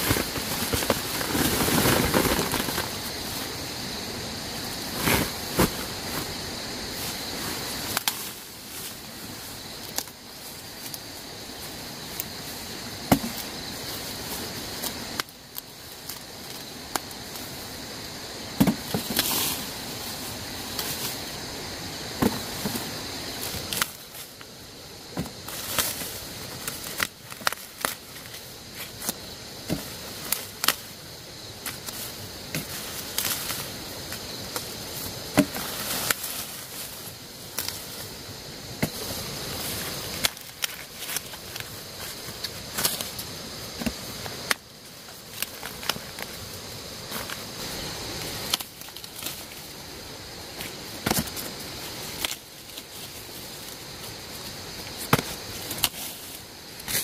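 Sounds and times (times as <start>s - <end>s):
steady high hiss: 0.0s - 57.0s
sharp snaps and knocks: 50.6s - 52.8s, 55.0s - 57.0s.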